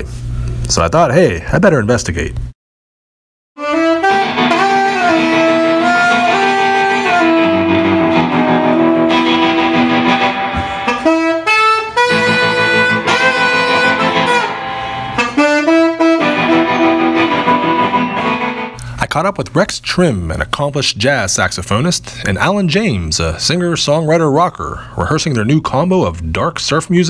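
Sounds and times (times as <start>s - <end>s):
saxophone slow melody: 3.6s - 18.8s
guitar: 3.6s - 20.8s.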